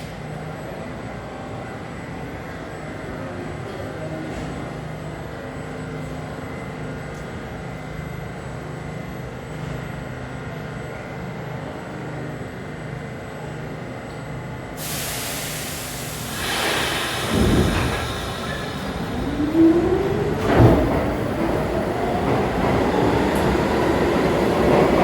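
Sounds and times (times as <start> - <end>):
subway train humming: 0.0 - 25.0
hiss of air: 14.8 - 19.2.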